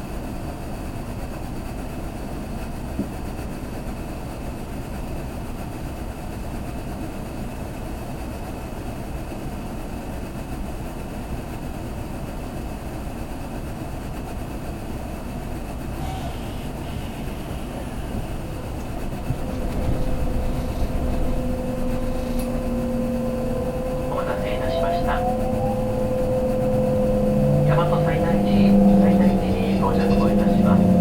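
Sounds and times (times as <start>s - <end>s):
train car rumble: 14.9s - 31.0s.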